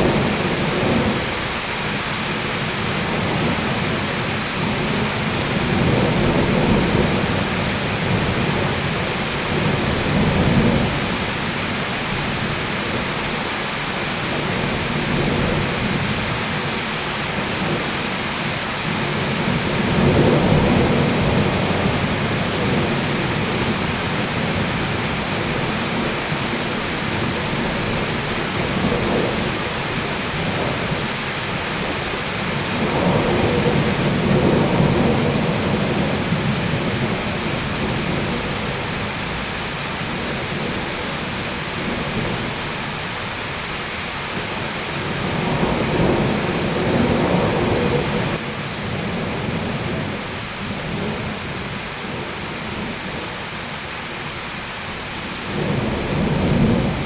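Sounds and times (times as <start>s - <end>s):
thunder rolling: 0.0s - 1.6s, 2.3s - 13.1s, 18.8s - 39.4s, 44.4s - 53.2s, 55.4s - 57.0s
heavy rain: 0.0s - 57.0s.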